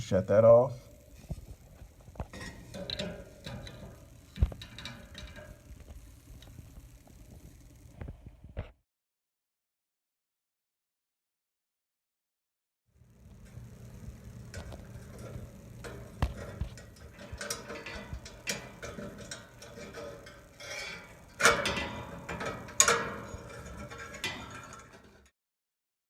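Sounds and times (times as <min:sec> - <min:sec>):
metal clanks: 0:01.1 - 0:06.7, 0:13.4 - 0:25.3
metal tools clicking and knocking: 0:02.3 - 0:05.6, 0:14.6 - 0:25.3.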